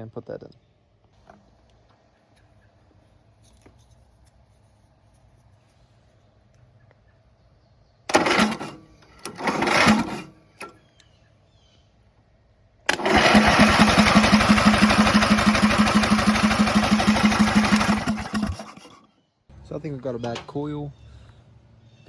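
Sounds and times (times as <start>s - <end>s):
tractor engine cranking: 8.1s - 10.8s, 12.9s - 19.1s.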